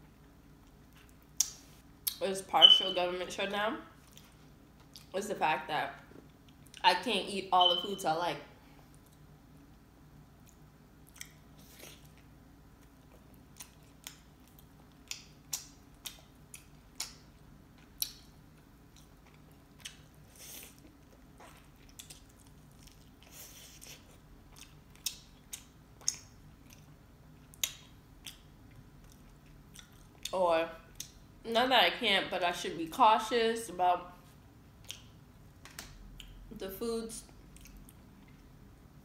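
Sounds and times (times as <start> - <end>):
low room hum: 0.0 - 39.0
person chewing: 4.0 - 5.1, 10.4 - 30.3, 37.4 - 38.5.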